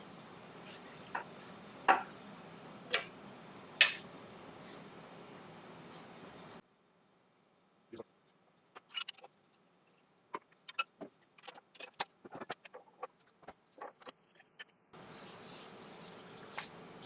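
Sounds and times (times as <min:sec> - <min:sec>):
steady hiss: 0:00.0 - 0:06.6, 0:15.0 - 0:17.0.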